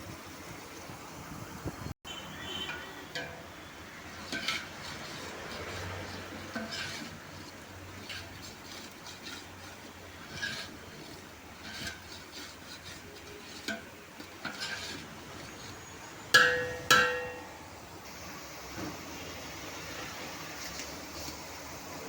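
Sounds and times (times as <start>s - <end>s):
utensils clinking against a pot: 2.6s - 17.6s
loud ringing clanks: 16.4s - 17.6s.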